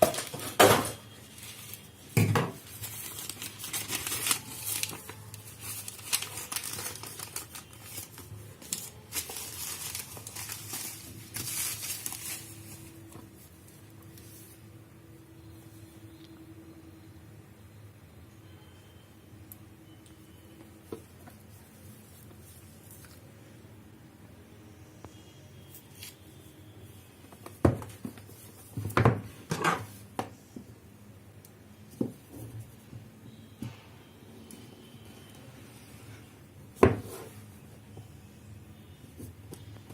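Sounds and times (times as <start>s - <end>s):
packaging crinkling and rustling: 0.0s - 13.5s.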